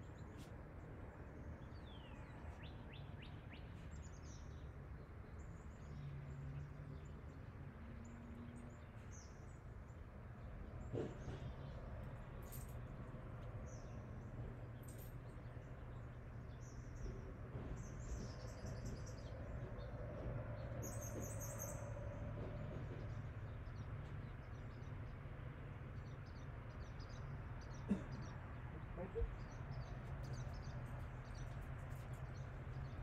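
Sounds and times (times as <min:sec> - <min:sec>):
small birds chirping: 0:01.5 - 0:33.0.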